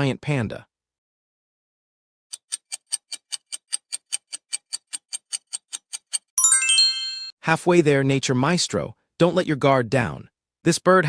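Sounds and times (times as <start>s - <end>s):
clock ticking: 2.3s - 6.4s
bright chime: 6.4s - 7.4s.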